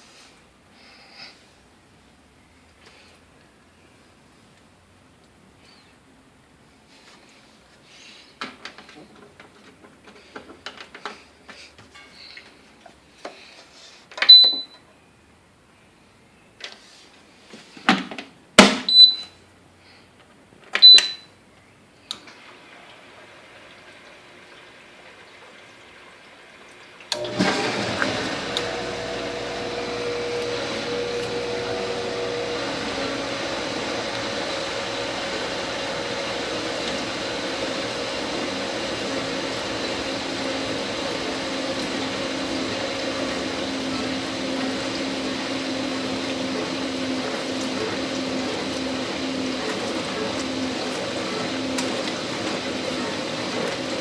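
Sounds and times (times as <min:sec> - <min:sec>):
dishwasher pump hum: 0:27.1 - 0:54.0
water spraying and sloshing: 0:27.2 - 0:54.0.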